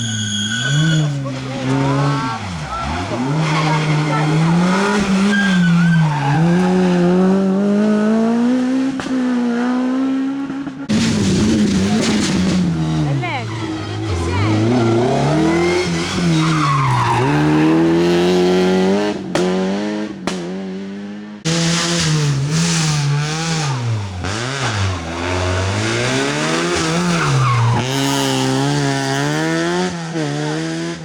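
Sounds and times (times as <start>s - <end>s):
tyre squeal: 0.0s - 7.0s
rally car engines revving: 0.0s - 31.0s.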